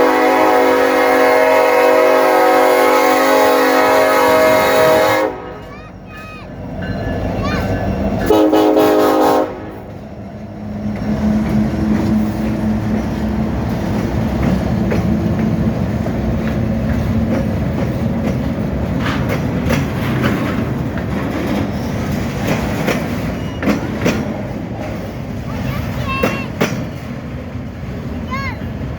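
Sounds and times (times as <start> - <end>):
diesel locomotive engine droning: 0.0 - 28.9
wheels clattering over rail joints: 10.3 - 28.8.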